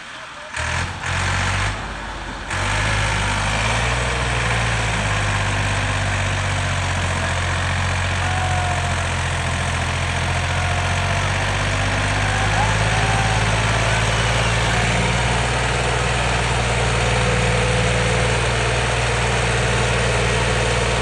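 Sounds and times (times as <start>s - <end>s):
tractor diesel engine idling: 0.0s - 21.0s.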